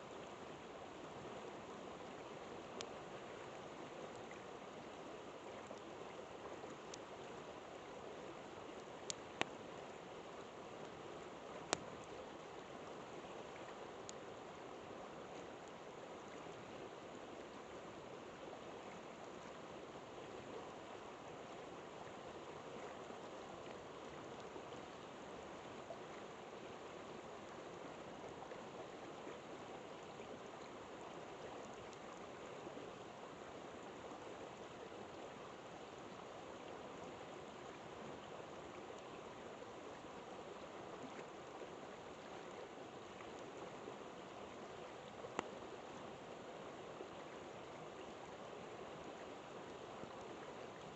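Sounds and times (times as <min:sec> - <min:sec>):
river water flowing: 0:00.0 - 0:50.9
campfire crackling: 0:08.7 - 0:09.6, 0:10.8 - 0:12.6.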